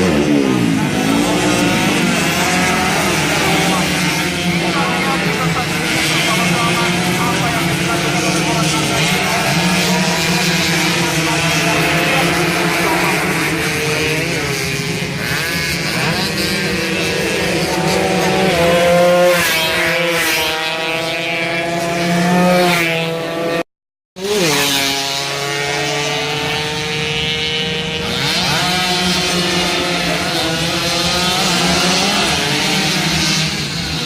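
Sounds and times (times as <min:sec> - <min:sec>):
racing motorcycles revving past: 0:00.0 - 0:23.6, 0:24.2 - 0:34.0.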